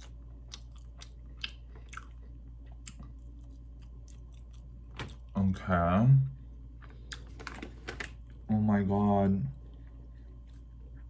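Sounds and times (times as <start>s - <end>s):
person chewing chicken: 0.0s - 5.4s
steady low hum: 0.0s - 11.0s.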